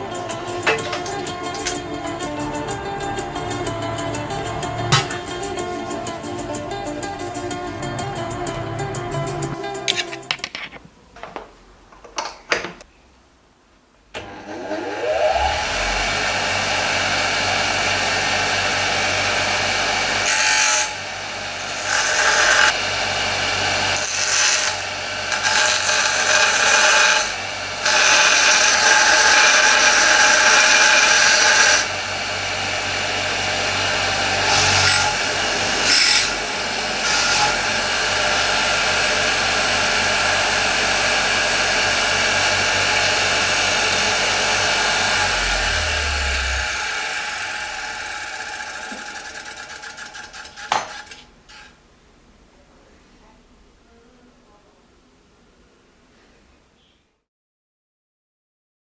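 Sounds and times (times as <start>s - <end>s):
bench grinder motor whining: 0.0s - 9.8s, 14.2s - 51.7s
grinding wheel grinding harshly: 14.2s - 18.2s, 23.9s - 51.7s.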